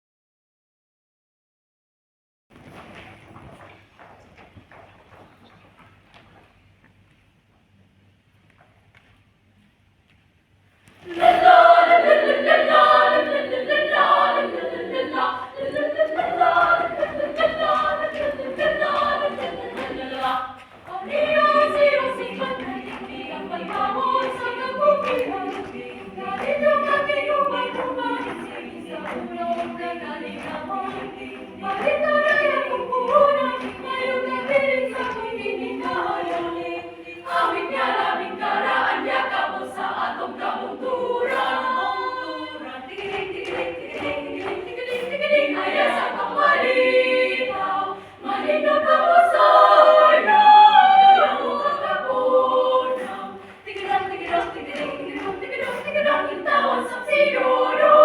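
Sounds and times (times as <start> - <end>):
choir singing in harmony: 11.0 - 58.0.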